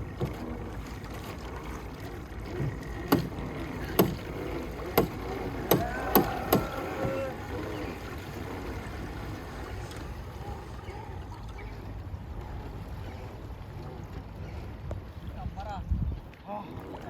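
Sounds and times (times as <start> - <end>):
water and wind wash: 0.0 - 17.0
sharp knocks: 4.0 - 4.2, 5.0 - 7.2.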